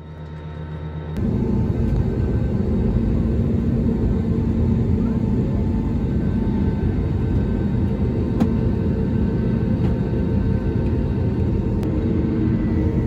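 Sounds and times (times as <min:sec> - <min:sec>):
jet engines rumbling in cabin: 0:00.1 - 0:13.0.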